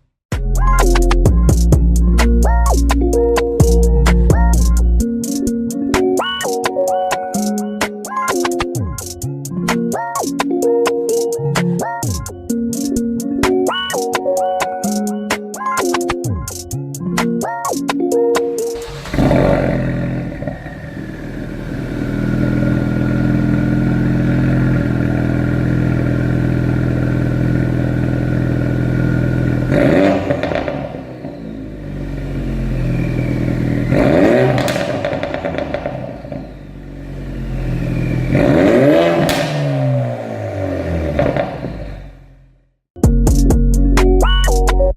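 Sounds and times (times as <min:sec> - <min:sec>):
car engine revving: 0:18.5 - 0:42.6
exhaust crackles and pops: 0:33.9 - 0:36.6, 0:41.1 - 0:42.0.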